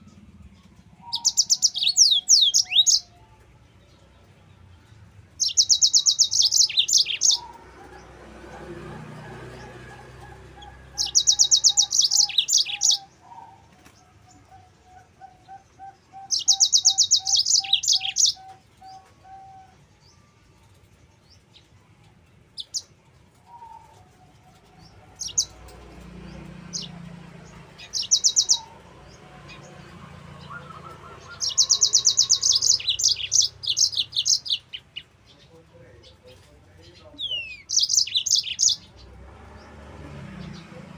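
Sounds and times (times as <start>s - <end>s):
bird singing high trills: 0.0s - 3.2s, 5.4s - 7.7s, 10.5s - 20.3s, 22.6s - 25.8s, 26.4s - 35.1s, 37.2s - 39.0s.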